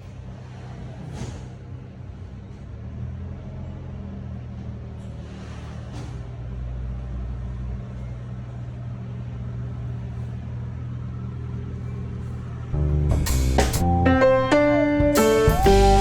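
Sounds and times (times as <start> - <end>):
car engine running: 12.7 - 14.0
music: 12.7 - 16.0.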